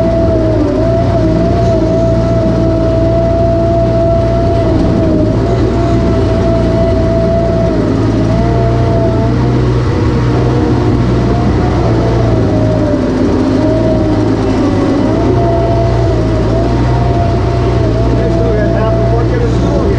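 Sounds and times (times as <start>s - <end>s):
heavy vehicle engine running: 0.0s - 19.9s
high wavering whine: 0.0s - 19.9s.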